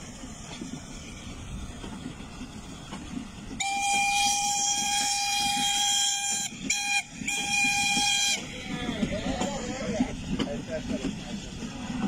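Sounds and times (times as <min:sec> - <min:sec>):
train rumbling: 0:00.0 - 0:12.0
locomotive horn blasts: 0:03.6 - 0:08.5.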